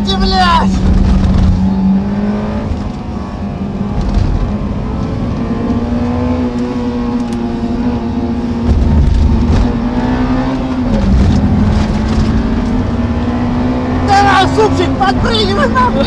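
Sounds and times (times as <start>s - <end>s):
car engine under load: 0.0s - 16.0s.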